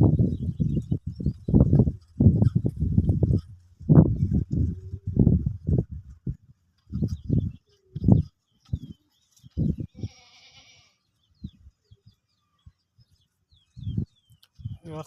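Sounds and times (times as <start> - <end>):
strong low thumps: 0.0 - 8.9
small birds chirping: 0.0 - 15.0.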